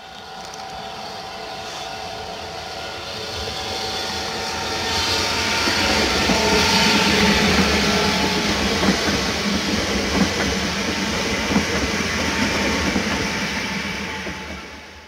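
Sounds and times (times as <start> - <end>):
train wheels rumbling on rail: 0.0 - 15.0
clacks over rail joints: 8.5 - 12.0.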